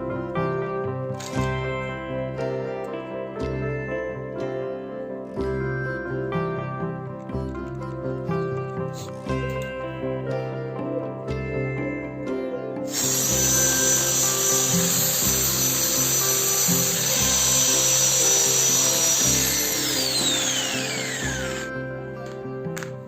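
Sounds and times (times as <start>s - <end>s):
motor winding down: 12.9s - 21.7s
power tool motor whining: 12.9s - 21.7s.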